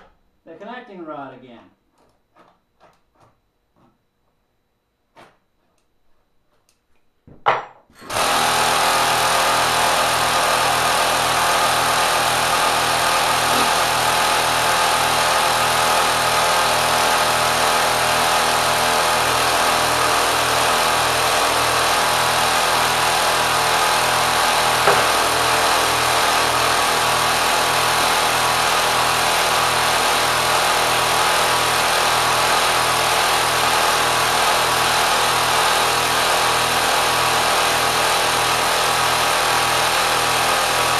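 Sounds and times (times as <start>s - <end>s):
electric motor whirring: 8.0s - 36.2s.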